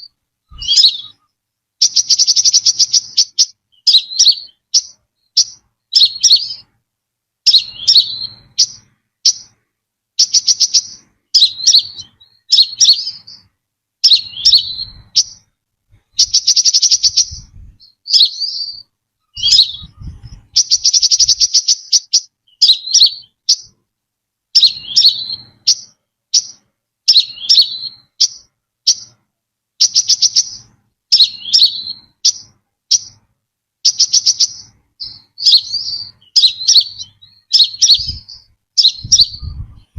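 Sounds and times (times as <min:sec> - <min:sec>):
bird chirping: 0:00.0 - 0:06.8, 0:07.4 - 0:23.8, 0:24.5 - 0:39.9
bird rattling trills: 0:01.8 - 0:06.6, 0:19.3 - 0:23.7.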